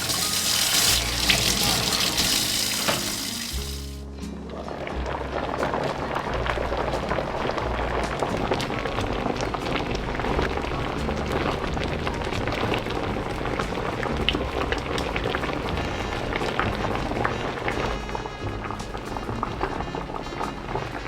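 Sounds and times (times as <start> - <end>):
food sizzling in a hot pan: 0.0 - 4.0
background music: 0.0 - 21.0.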